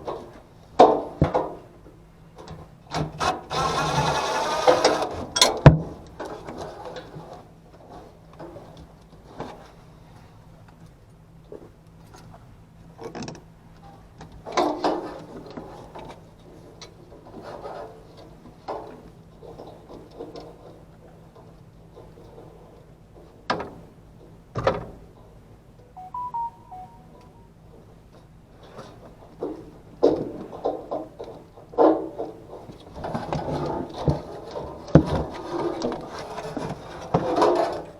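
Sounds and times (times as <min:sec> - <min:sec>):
faint steady hum: 0:25.8 - 0:27.6
stepped electronic beep: 0:25.9 - 0:27.5.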